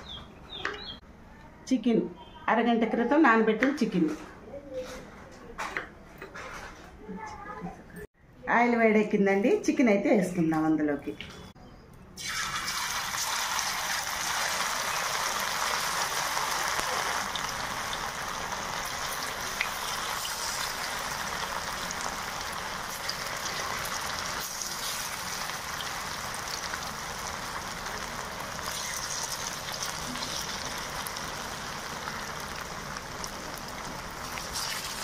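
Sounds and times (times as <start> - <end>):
chicken deep-frying in oil: 12.2 - 35.0.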